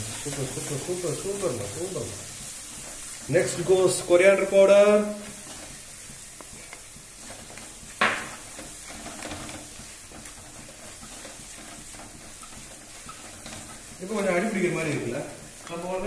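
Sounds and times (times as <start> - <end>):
oil sizzling in pan: 0.0 - 16.0
wooden spatula scraping pan: 0.0 - 16.0
knock on pan: 8.0 - 8.4.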